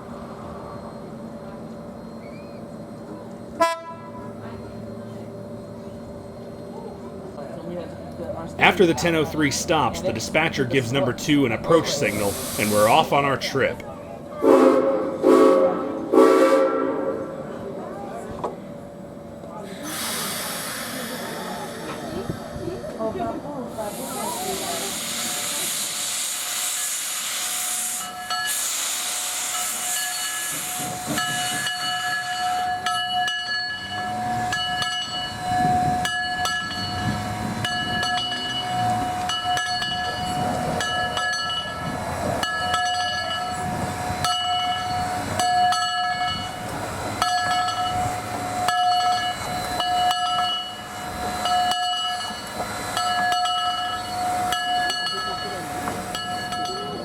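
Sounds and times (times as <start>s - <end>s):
steam hiss: 12.1s - 13.0s, 19.7s - 22.7s, 23.7s - 32.6s
train wheels clicking: 24.8s - 32.6s.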